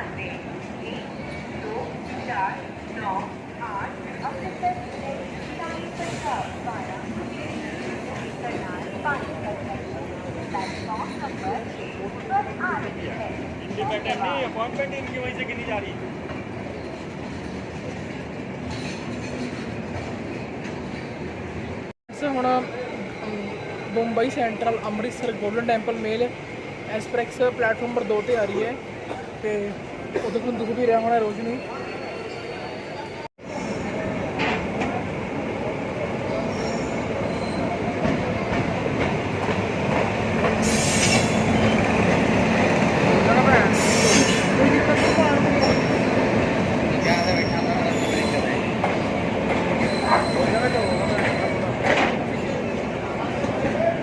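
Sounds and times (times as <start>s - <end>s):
train running: 32.8s - 54.0s.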